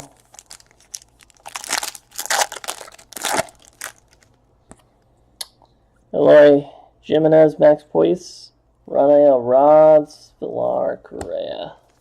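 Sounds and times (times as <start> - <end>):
foil wrapper crinkling and tearing: 0.0 - 4.4.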